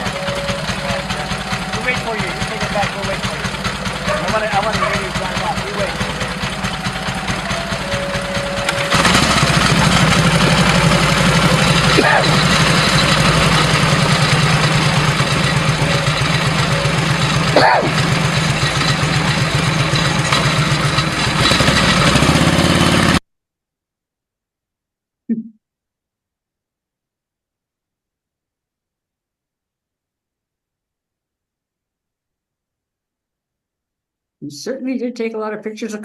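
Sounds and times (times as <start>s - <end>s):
motorcycle engine running: 0.0s - 23.2s.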